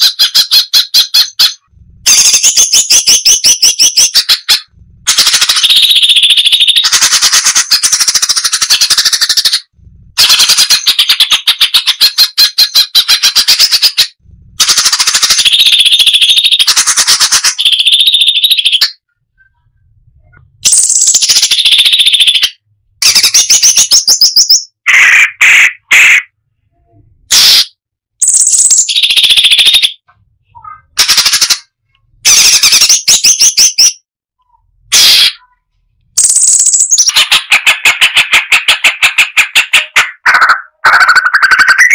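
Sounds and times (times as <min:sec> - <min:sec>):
bird singing rattling bursts: 0:00.0 - 0:19.0, 0:20.6 - 0:24.8, 0:28.2 - 0:30.0, 0:36.2 - 0:41.9.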